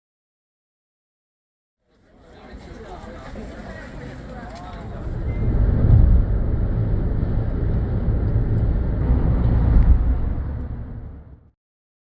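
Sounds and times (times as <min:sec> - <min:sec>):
loud low rumbling: 0:04.8 - 0:11.6.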